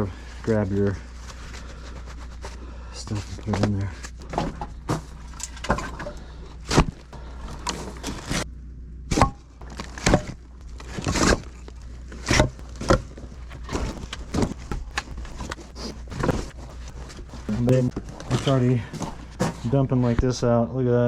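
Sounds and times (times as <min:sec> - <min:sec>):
firewood pieces knocking together: 0:04.2 - 0:08.2
generator running: 0:09.6 - 0:19.9.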